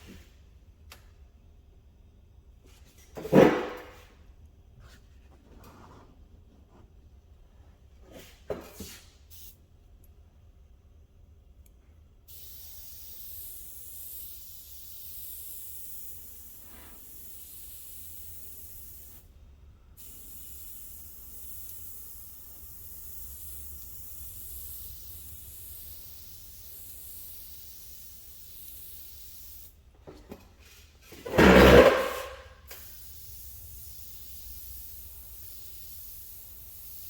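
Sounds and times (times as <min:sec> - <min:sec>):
paint sprayer hissing: 0:08.2 - 0:09.6, 0:12.3 - 0:19.3, 0:20.0 - 0:37.0.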